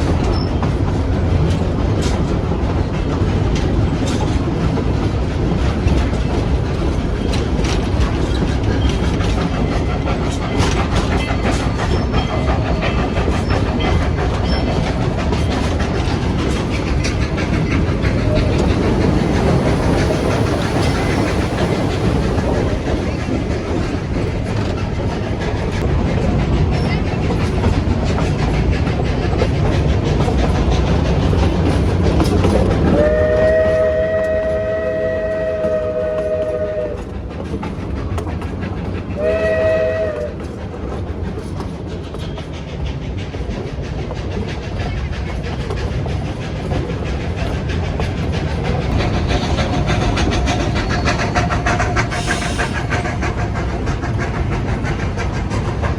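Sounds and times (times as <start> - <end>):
train wheels rumbling on rails: 0.0 - 55.9
train whistle blast: 33.0 - 37.1, 39.2 - 40.4.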